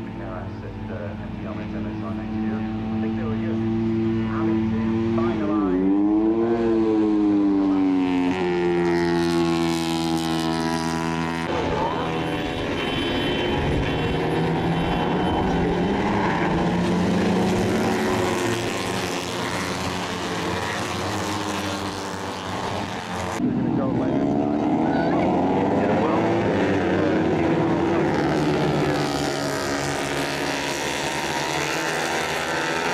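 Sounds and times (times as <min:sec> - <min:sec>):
several motorcycles howling: 0:00.0 - 0:32.9
racing motorcycle screaming: 0:24.2 - 0:32.9.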